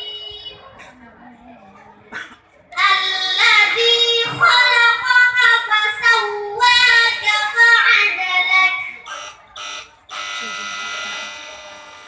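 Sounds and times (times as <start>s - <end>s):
girl chanting melodically: 2.8s - 9.0s.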